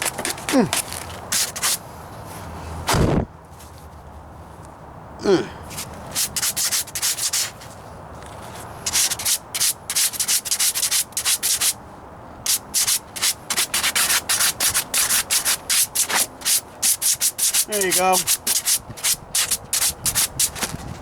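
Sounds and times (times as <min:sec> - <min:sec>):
sandpaper rasping on metal: 0:00.0 - 0:01.8, 0:06.1 - 0:07.6, 0:08.9 - 0:11.8, 0:12.5 - 0:20.7.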